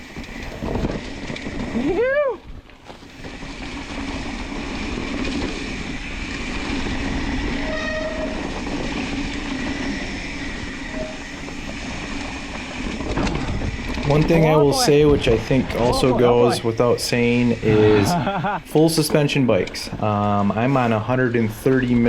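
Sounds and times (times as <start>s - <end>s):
bike tyre and drivetrain noise: 0.0s - 22.0s
disc brakes squealing: 7.6s - 8.7s, 9.6s - 11.9s.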